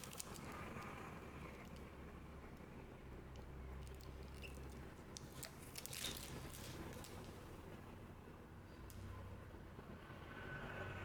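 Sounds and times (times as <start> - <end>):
card handling noise: 3.9 - 7.6.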